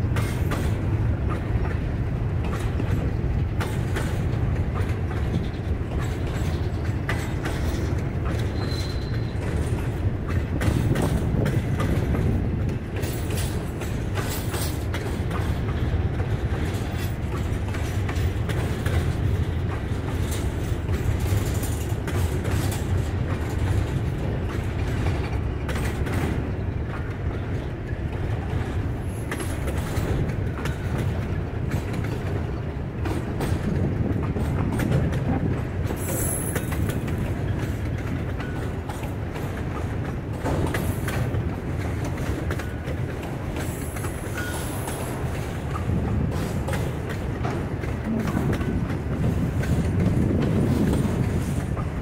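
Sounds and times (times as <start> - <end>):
train wheels rumbling on rail: 0.0 - 52.0
wheels clacking over rail joints: 0.0 - 52.0
high wheel squeals: 8.5 - 9.4.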